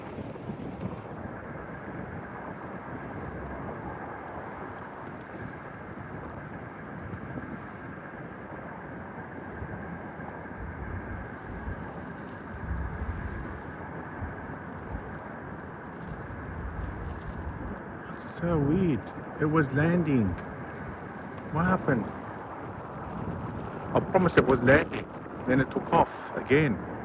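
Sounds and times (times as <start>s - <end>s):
wind buffeting microphone: 0.0s - 27.0s
distant jet engines rumbling: 9.3s - 27.0s.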